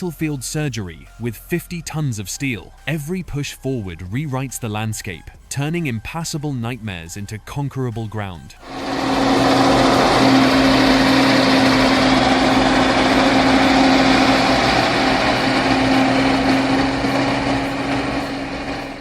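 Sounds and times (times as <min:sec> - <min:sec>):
bulldozer diesel engine drone: 0:08.6 - 0:19.0.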